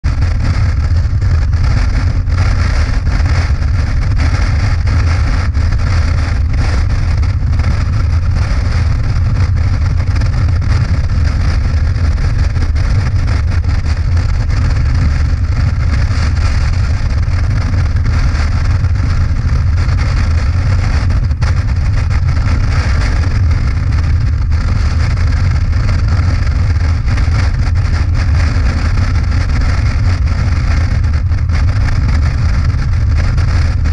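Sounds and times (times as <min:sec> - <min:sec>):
motorcycle engine and road rumble: 0:00.0 - 0:33.9.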